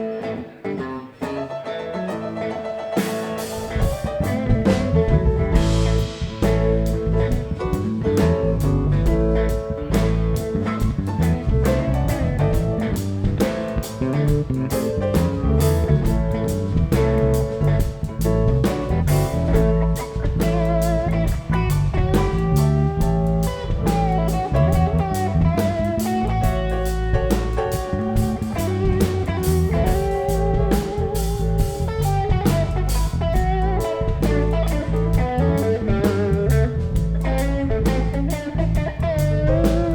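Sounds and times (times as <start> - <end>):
picked guitar notes: 0.0 - 39.9
drum kit with cymbal crashes: 3.0 - 39.9
heavy low end: 3.4 - 39.9.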